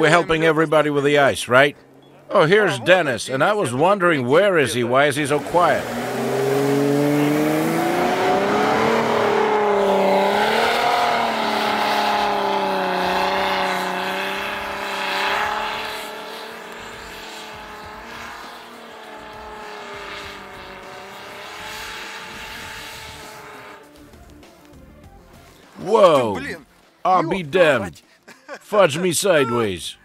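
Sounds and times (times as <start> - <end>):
engine pulling under load: 5.2 - 24.1.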